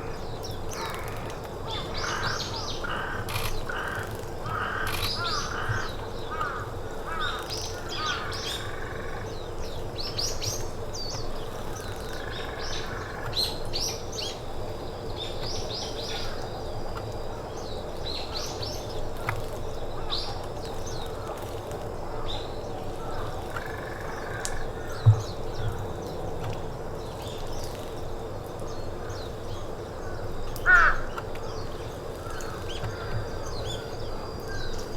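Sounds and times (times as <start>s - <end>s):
crows calling: 0.7s - 9.3s, 22.1s - 25.8s, 30.0s - 31.3s, 32.2s - 34.9s.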